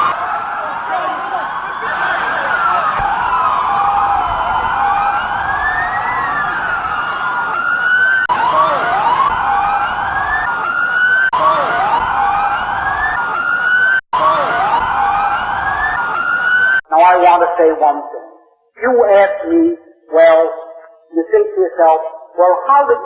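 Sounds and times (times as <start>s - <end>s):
sirens wailing: 0.0s - 18.1s.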